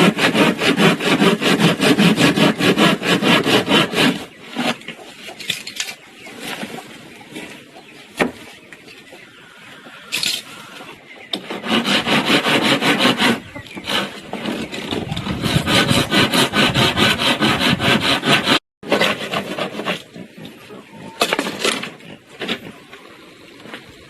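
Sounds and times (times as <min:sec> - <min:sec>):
hand saw cutting wood: 0:00.0 - 0:06.0, 0:11.3 - 0:23.0.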